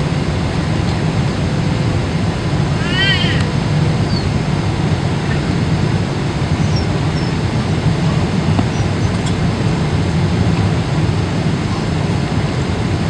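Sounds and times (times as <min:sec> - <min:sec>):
airliner rumble inside cabin: 0:00.0 - 0:13.0.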